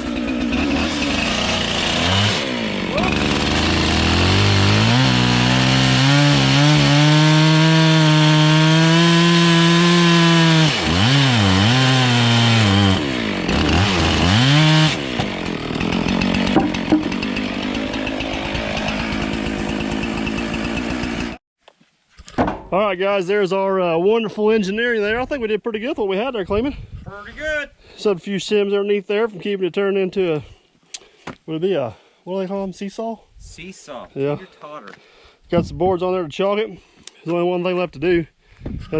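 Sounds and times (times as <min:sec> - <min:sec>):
chainsaw cutting wood: 0:00.0 - 0:21.4.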